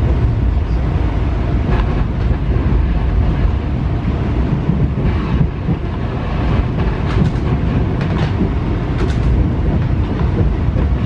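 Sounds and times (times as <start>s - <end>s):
train wheels rumbling: 0.0s - 11.0s
wheels clicking over track: 6.5s - 11.0s.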